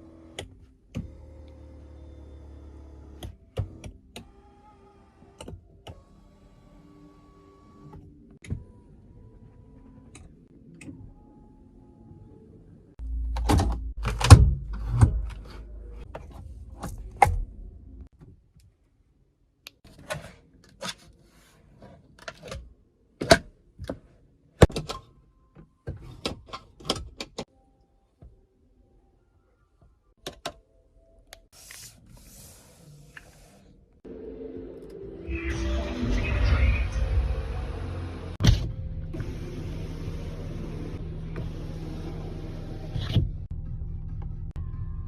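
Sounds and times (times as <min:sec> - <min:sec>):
low rumble: 0:34.1 - 0:45.0.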